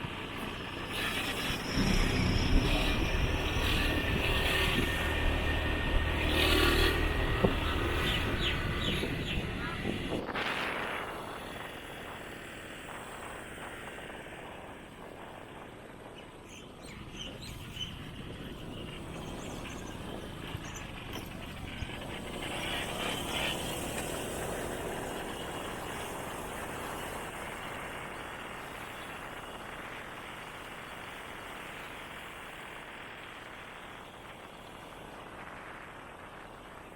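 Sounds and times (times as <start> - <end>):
road noise: 0.0 - 36.9
motorbike engine: 0.1 - 10.2, 19.0 - 27.8.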